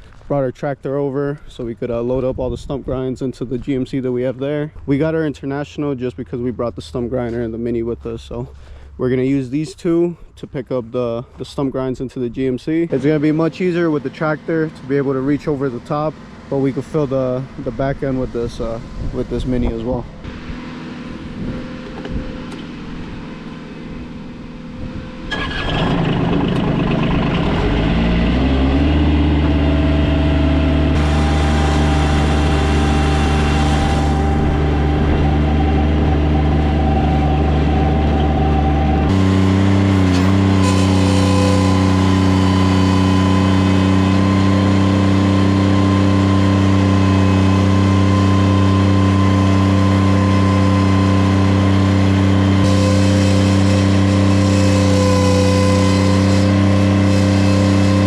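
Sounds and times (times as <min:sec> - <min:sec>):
equipment engine running: 0:03.4 - 0:58.0.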